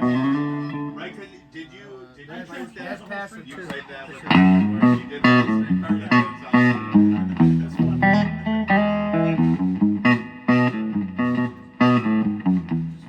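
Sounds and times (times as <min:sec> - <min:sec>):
electric guitar melody: 0:00.0 - 0:01.4, 0:04.3 - 0:13.0.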